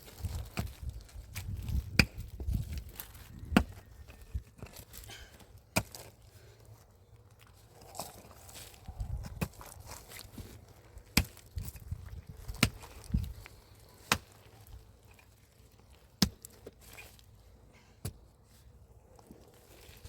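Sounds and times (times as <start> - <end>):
pickaxe striking earth and stones: 0.0 - 6.2, 7.9 - 15.3, 16.1 - 17.2, 18.0 - 18.3
soil scraping and crumbling: 0.0 - 20.0.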